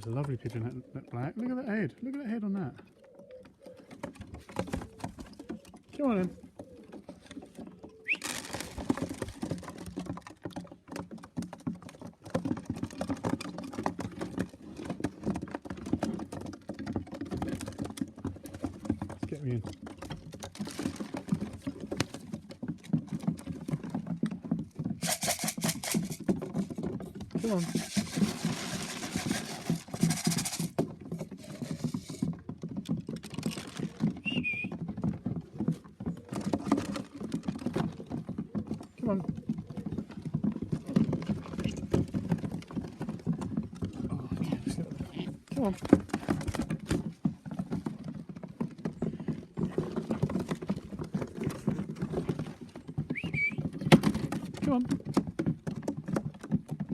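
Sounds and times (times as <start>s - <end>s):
pigeons' feet tapping: 0.0s - 56.9s
pigeons cooing: 0.4s - 9.2s, 33.6s - 41.8s
wings flapping: 7.9s - 9.7s, 25.0s - 26.2s, 27.4s - 30.8s.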